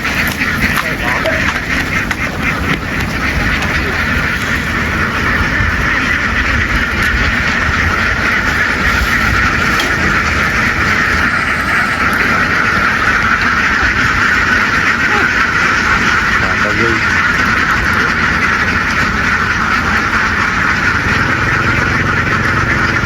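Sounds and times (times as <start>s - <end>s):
ducks quacking: 0.0s - 23.0s
low steady rumble: 0.0s - 23.0s.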